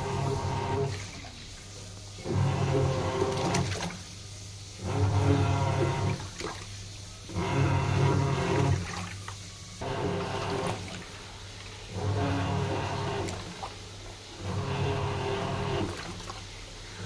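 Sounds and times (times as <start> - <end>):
washing machine churning: 0.0 - 17.0
water sloshing: 4.8 - 17.0
low motor hum: 14.4 - 16.4.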